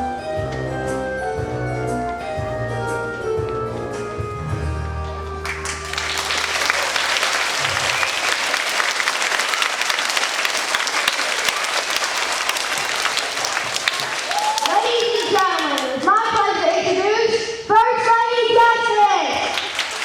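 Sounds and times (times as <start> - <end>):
music: 0.0 - 7.4
audience applauding: 5.2 - 16.4, 19.4 - 20.0.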